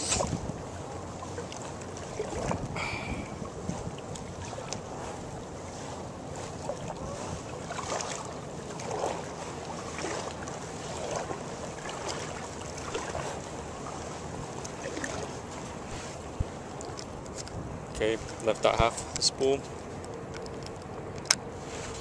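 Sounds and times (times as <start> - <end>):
wind noise on microphone: 0.0 - 0.8, 2.2 - 5.4, 6.4 - 7.6, 17.3 - 18.3
water lapping and splashing: 0.0 - 22.0.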